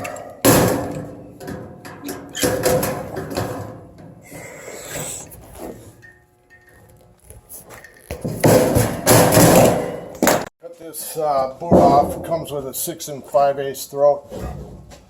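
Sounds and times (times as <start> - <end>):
sheet metal clanking: 0.0 - 4.2, 8.2 - 10.5, 11.6 - 12.6.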